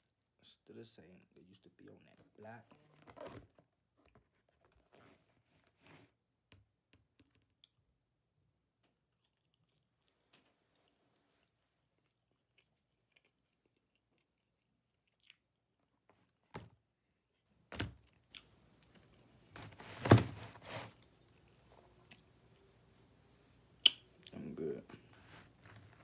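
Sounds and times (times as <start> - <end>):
biting and chewing: 9.0 - 16.4.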